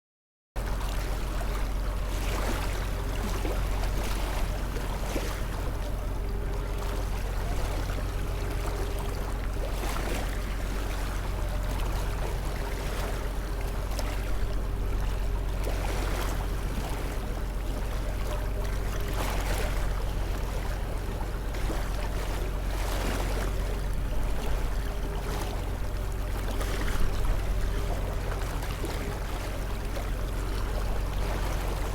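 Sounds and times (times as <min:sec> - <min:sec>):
constant low hum: 0:00.6 - 0:31.9.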